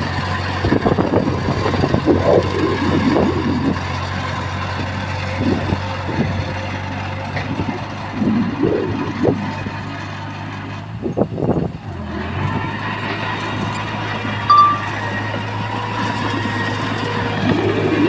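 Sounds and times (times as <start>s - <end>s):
diesel machinery engine running: 0.0s - 18.0s
short high tone: 14.5s - 15.3s.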